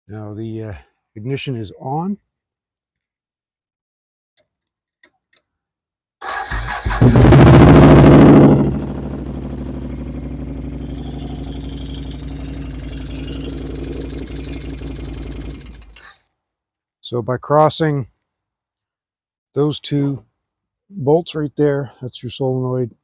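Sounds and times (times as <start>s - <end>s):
engine idling: 6.2s - 16.1s
engine cranking and revving: 6.2s - 16.2s.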